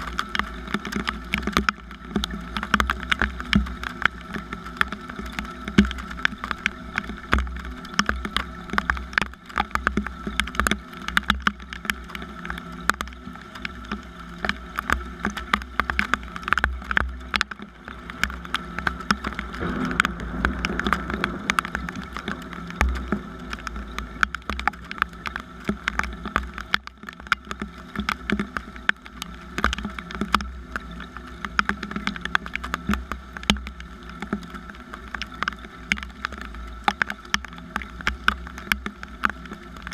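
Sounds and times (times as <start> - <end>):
raindrops ticking on a surface: 0.0 - 39.9
steady rain: 0.0 - 39.9
low rumble: 17.6 - 26.9.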